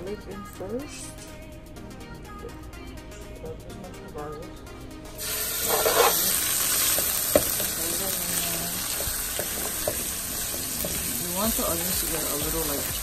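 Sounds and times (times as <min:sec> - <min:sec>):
onions sizzling in oil: 0:05.2 - 0:13.0
spatula knocking against pan: 0:07.0 - 0:07.8.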